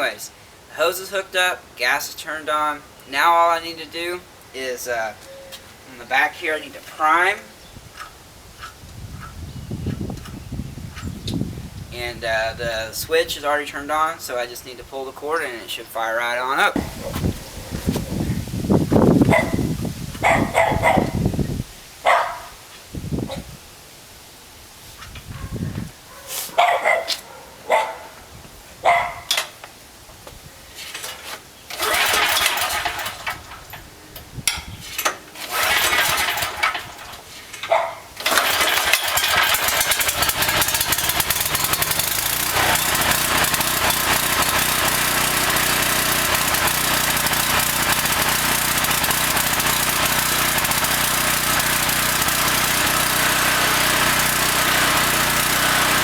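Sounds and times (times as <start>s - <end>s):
recoil starter pulls: 16.7s - 18.3s, 30.9s - 56.0s
generator engine running: 16.8s - 19.7s, 31.7s - 33.7s, 35.4s - 37.2s, 38.2s - 56.0s
dog barking: 19.3s - 19.6s, 20.2s - 21.1s, 22.0s - 22.5s, 25.3s - 28.2s, 28.8s - 29.3s, 37.7s - 38.0s.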